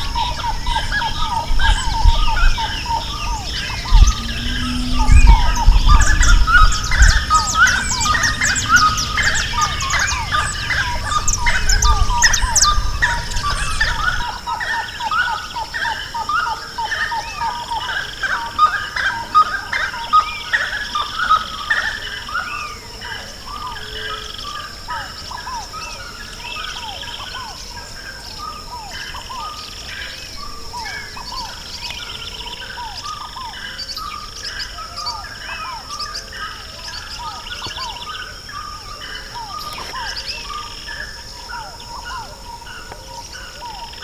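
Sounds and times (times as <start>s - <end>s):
low rumble: 0.0s - 14.2s
birds chirping in chorus: 0.0s - 44.0s
steady high tone: 3.4s - 14.1s.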